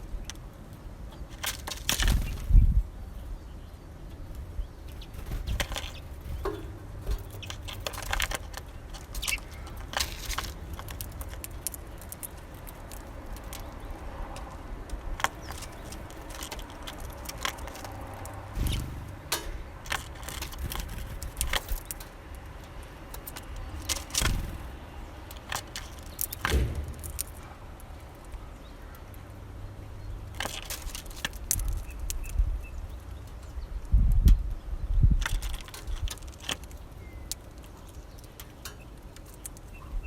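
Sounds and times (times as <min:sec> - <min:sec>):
beaks tapping on seeds: 0:04.3 - 0:27.4, 0:35.2 - 0:39.7
low thumps: 0:18.5 - 0:19.8.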